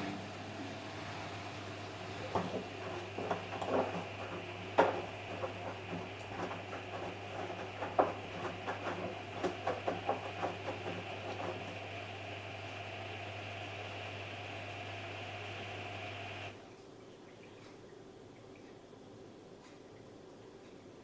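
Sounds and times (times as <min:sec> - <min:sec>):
washing machine hum: 0:00.0 - 0:21.0
washing machine clicks and knocks: 0:02.2 - 0:12.0.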